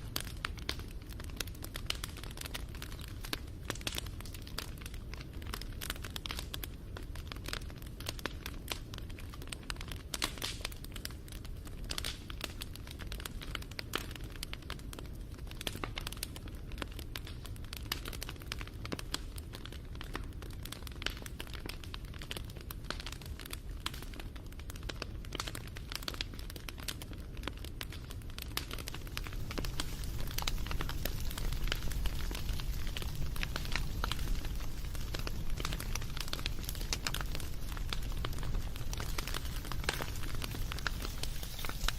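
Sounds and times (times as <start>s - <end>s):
low rumble of burning: 0.0s - 41.9s
wood fire crackling: 0.0s - 41.9s.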